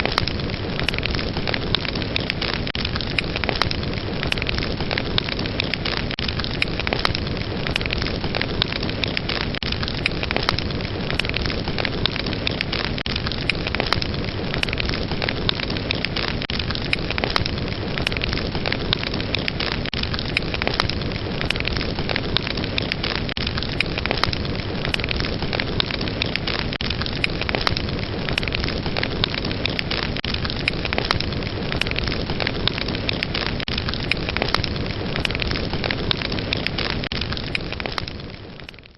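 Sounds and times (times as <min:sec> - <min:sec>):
fire crackling: 0:00.0 - 0:38.9
sharp pops of fire: 0:00.0 - 0:38.9.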